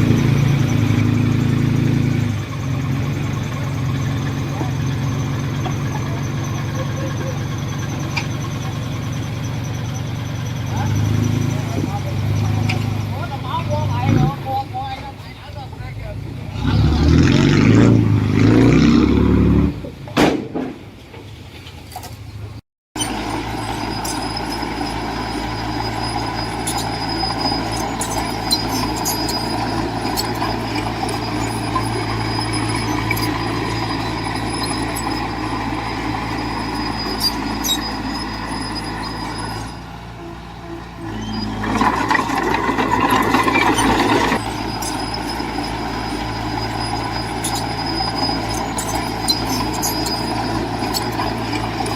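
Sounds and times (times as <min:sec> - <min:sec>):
heavy diesel engine under load: 0:00.0 - 0:51.9
metallic clanks: 0:41.1 - 0:46.7.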